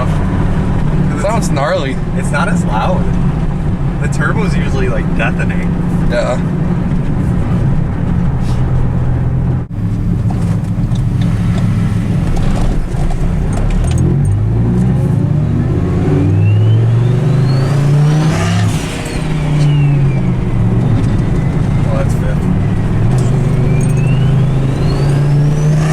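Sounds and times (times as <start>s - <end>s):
truck engine accelerating: 0.0s - 25.9s
wastegate air rush: 8.4s - 8.7s.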